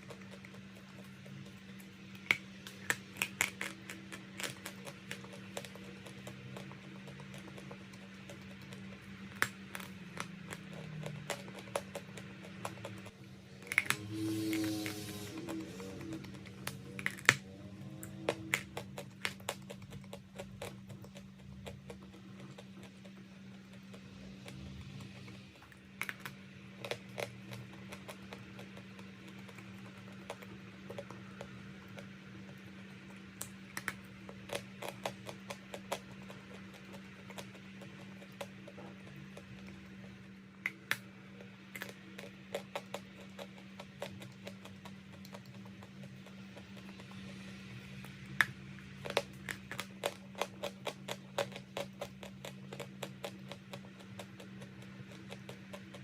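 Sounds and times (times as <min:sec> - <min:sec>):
steady low hum: 0:00.0 - 0:56.0
chalk crunching: 0:09.5 - 0:20.8.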